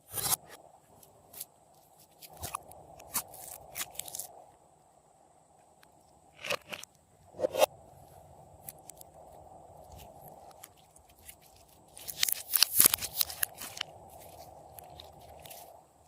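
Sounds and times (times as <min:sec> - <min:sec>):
sticky crackling and popping clicks: 0:10.3 - 0:15.7.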